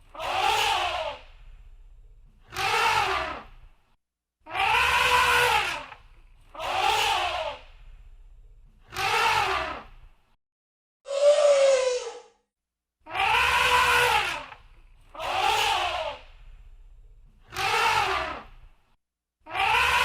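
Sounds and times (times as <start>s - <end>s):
low rumble: 1.3s - 2.4s
elephant trumpeting: 4.6s - 5.9s, 13.2s - 14.5s.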